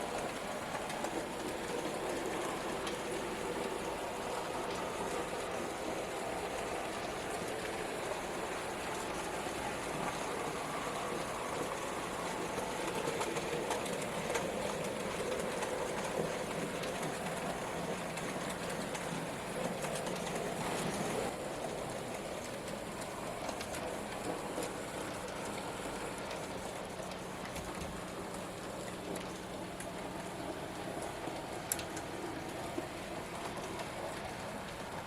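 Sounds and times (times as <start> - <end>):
wheels running on track: 0.0 - 35.0
faint light ticks: 31.0 - 32.8.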